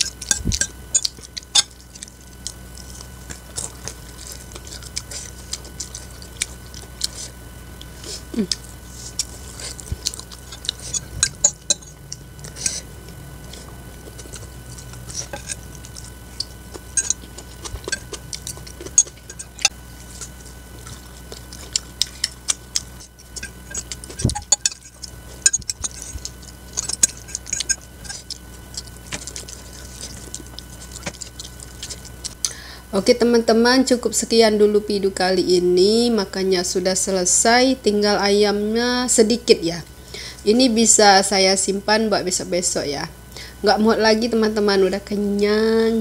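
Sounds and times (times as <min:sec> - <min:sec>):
chewing noodles with mouth clicks: 0:00.0 - 0:32.6.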